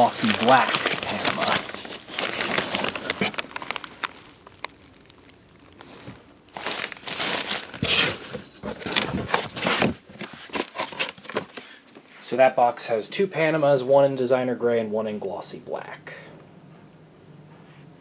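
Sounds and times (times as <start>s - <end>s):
cardboard and packing crinkling: 0.0s - 12.1s.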